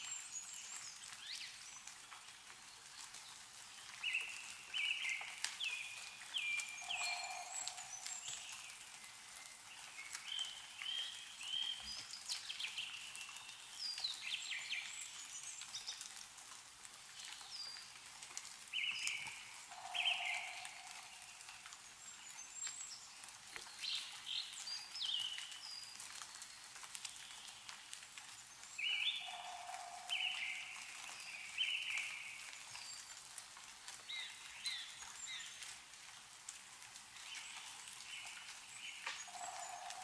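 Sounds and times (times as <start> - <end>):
drips of melting snow: 0.0 - 40.0
faint outdoor hiss: 0.0 - 40.0
small birds chirping and whistling: 4.0 - 16.0, 18.8 - 25.9, 28.8 - 33.1.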